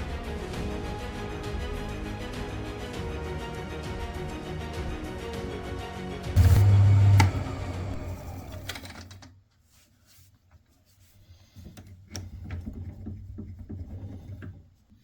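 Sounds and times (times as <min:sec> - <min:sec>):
lathe spinning down whine: 0:06.4 - 0:09.1.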